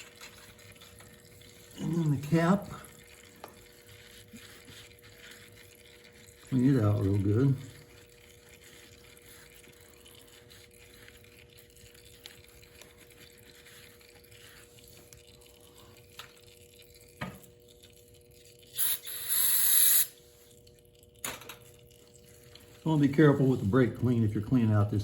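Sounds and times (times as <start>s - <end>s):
aerosol spray hissing: 18.8s - 20.1s.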